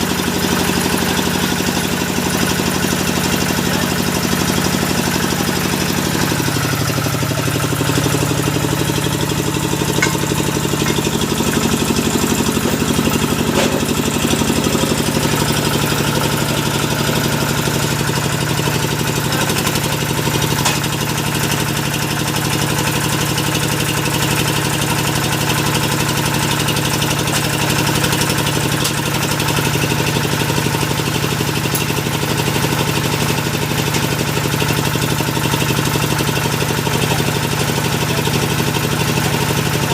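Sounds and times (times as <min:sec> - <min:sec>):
drilling machine engine humming: 0:00.0 - 0:39.9.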